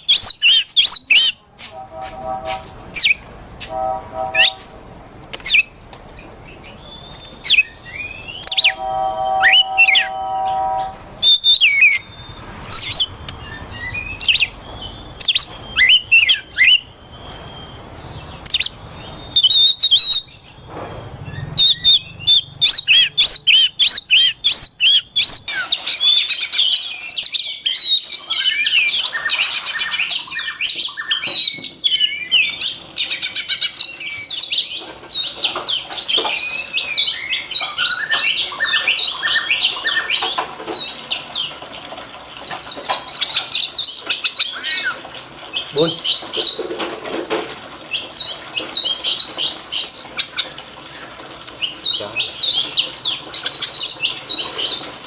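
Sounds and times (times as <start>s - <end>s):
bird singing whistles and clicks: 0.0s - 1.4s, 5.4s - 8.8s, 9.4s - 16.9s, 18.4s - 20.6s, 21.4s - 25.5s.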